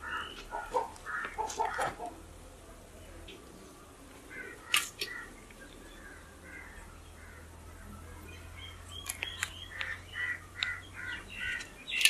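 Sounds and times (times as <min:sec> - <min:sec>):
birds calling faintly: 0:00.0 - 0:12.0.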